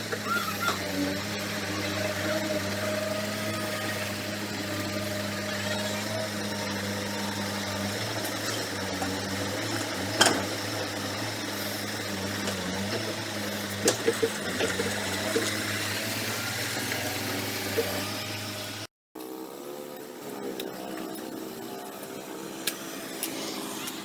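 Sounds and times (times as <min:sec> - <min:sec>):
heavy machinery diesel engine running: 0:00.0 - 0:18.9.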